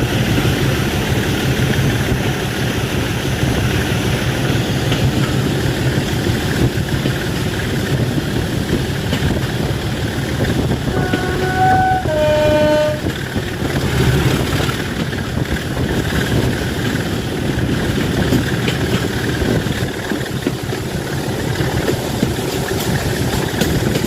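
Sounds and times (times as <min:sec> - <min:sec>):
locomotive engine running: 0:00.0 - 0:24.0
locomotive two-tone horn: 0:10.8 - 0:13.2.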